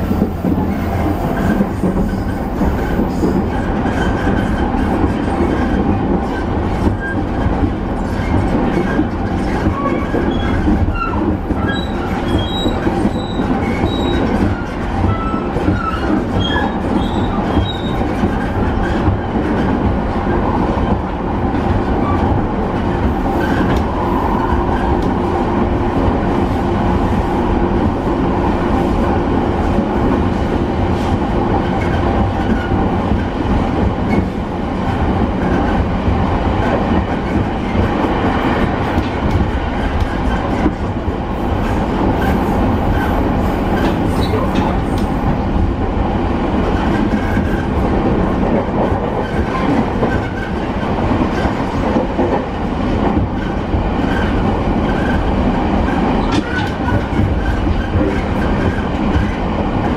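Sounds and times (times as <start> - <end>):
rail-joint clicks: 0.0 - 20.0, 20.8 - 25.3, 36.5 - 45.5, 55.9 - 59.9
train wheels rumbling on rail: 0.0 - 59.9
wheel squeals: 9.7 - 18.0.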